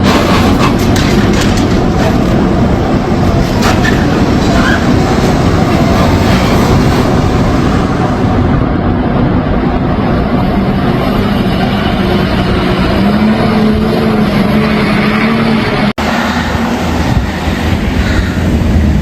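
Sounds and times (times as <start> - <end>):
motor vehicle engine hum: 0.0 - 19.0.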